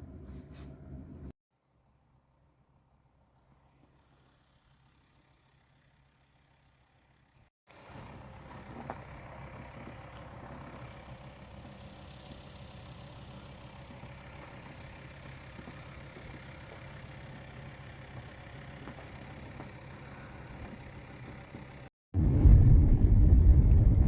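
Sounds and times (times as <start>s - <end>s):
vehicle engine running: 4.1s - 24.0s.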